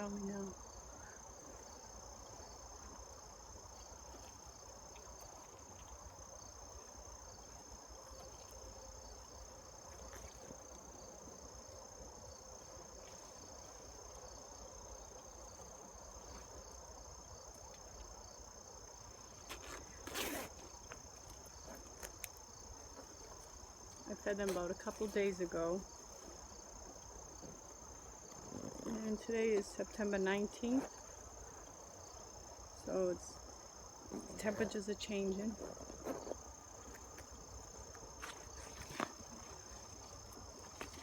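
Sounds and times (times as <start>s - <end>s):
crickets trilling: 0.0s - 41.0s
short rustle: 19.3s - 22.2s.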